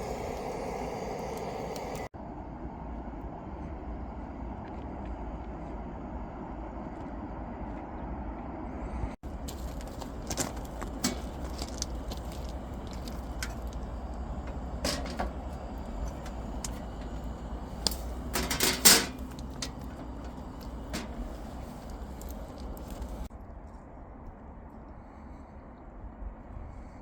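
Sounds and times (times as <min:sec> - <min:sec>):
low rumble: 0:00.0 - 0:23.3
objects clicking and clattering: 0:09.3 - 0:23.3.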